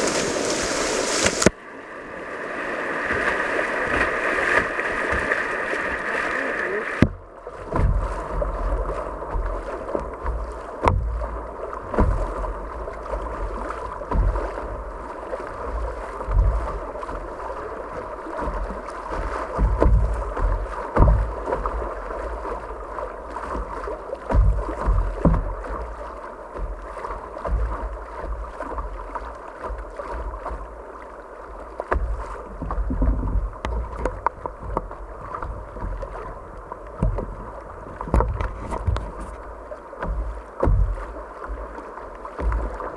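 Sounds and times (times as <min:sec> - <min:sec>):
wind buffeting microphone: 0:00.0 - 0:01.5
paddle strokes: 0:00.0 - 0:42.9
water swishing against hull: 0:00.0 - 0:42.9
sharp knocks: 0:07.0 - 0:07.2.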